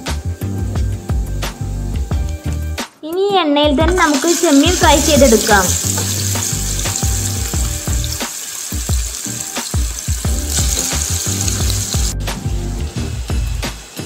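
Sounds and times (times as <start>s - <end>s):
background music with steady beat: 0.0s - 14.0s
prawns sizzling in hot oil: 3.9s - 14.0s.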